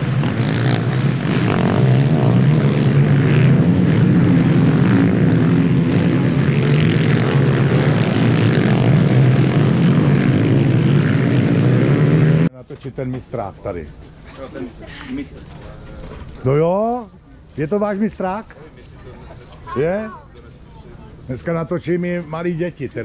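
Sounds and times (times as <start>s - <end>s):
motorcycle engines droning: 0.0s - 14.7s.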